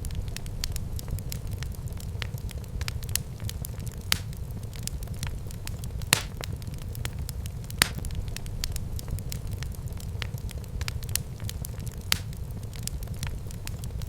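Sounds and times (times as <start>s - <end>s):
low rumble of flames: 0.0s - 14.0s
wood fire crackling and popping: 0.0s - 14.0s.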